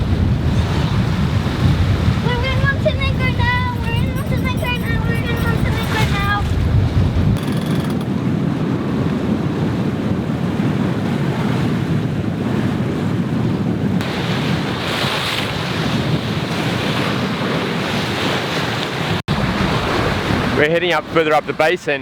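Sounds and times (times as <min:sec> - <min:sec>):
wind buffeting microphone: 0:00.0 - 0:21.6
water rushing along hull: 0:00.0 - 0:22.0.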